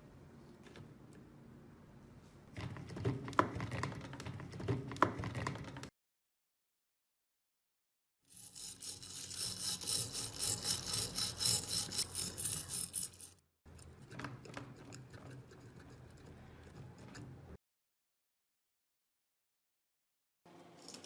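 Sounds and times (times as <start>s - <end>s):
hand scrubbing rusty metal: 8.4s - 13.4s.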